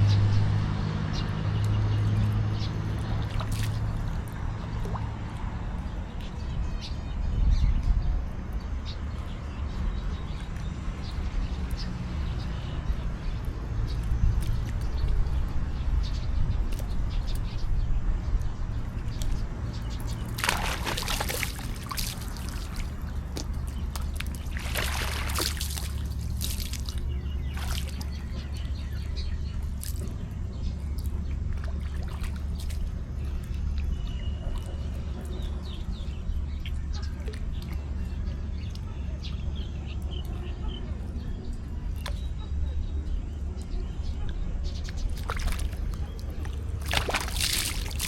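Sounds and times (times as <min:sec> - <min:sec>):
steady low rumble: 0:00.0 - 0:48.0
water splashing in pool: 0:02.3 - 0:05.4, 0:19.0 - 0:28.8, 0:31.0 - 0:33.0, 0:44.9 - 0:48.0.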